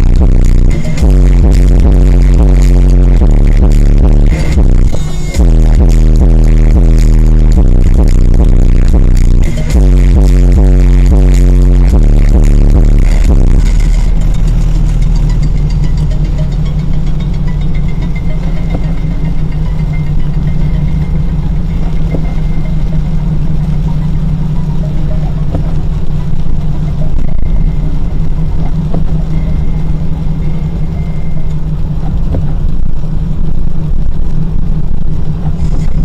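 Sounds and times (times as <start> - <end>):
car engine and road noise: 0.0 - 36.0.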